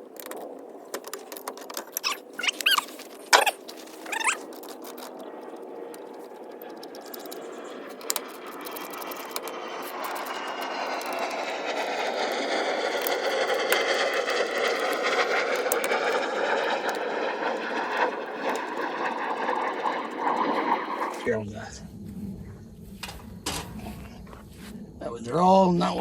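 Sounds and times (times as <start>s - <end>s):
aircraft passing overhead: 0.0s - 26.0s
sharp clicks: 0.1s - 20.4s.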